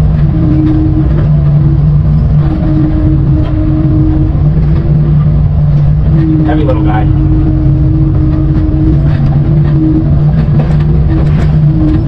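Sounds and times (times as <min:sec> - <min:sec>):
excavator engine digging: 0:00.0 - 0:12.0.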